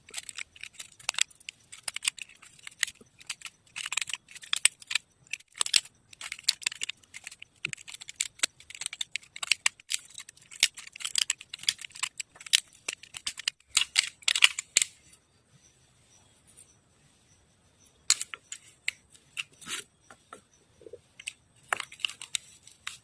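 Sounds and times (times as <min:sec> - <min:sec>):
hand tool scraping wood: 0:19.2 - 0:20.3.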